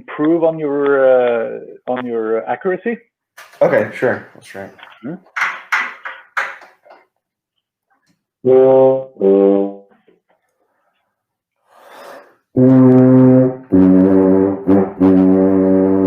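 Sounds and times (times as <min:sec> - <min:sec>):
tuba playing low notes: 0:08.4 - 0:09.9, 0:12.6 - 0:16.0.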